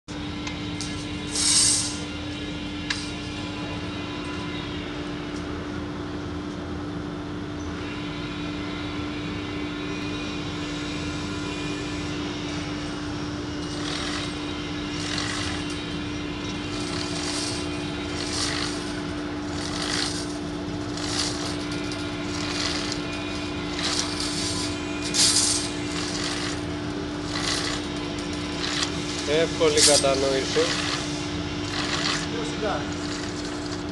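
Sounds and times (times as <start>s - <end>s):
scraping hisses of strip feeding: 1.3s - 2.1s, 16.7s - 33.9s
machine humming: 11.3s - 33.9s.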